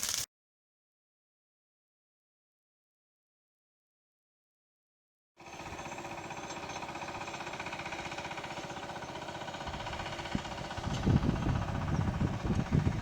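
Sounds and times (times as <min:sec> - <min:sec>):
engine idling: 0:05.4 - 0:13.0.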